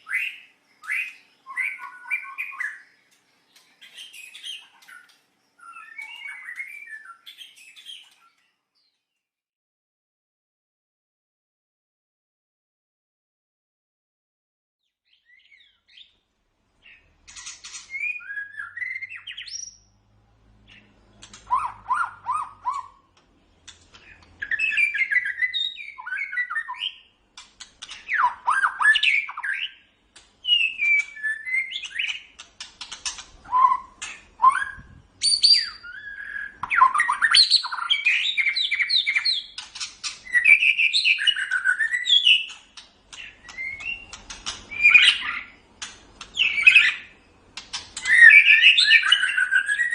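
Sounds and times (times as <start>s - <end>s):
bird singing whistles and trills: 0.0s - 8.9s, 16.8s - 19.9s, 20.7s - 23.1s, 24.1s - 27.1s, 27.8s - 49.9s.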